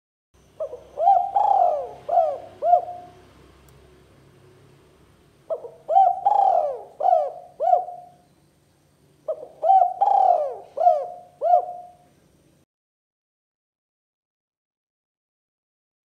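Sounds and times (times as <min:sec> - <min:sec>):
dove cooing: 0:00.6 - 0:03.4, 0:05.5 - 0:08.2, 0:09.2 - 0:12.1.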